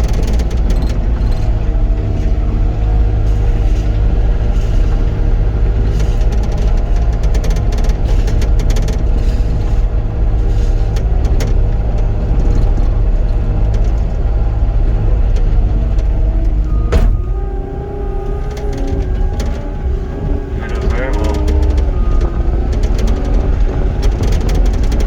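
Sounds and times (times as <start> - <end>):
loader diesel engine running: 0.0 - 25.0
sharp knock: 16.9 - 17.4.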